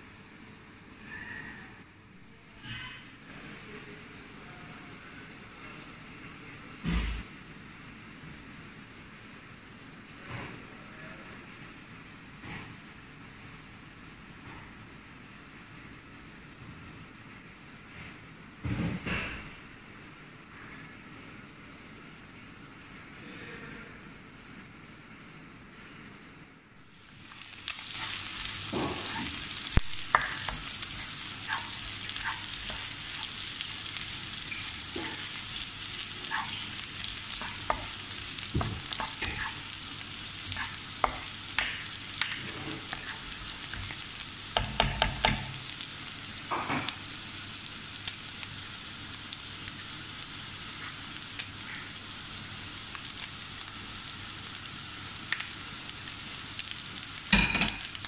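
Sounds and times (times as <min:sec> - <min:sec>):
meat sizzling in a wok: 0:26.8 - 0:58.0.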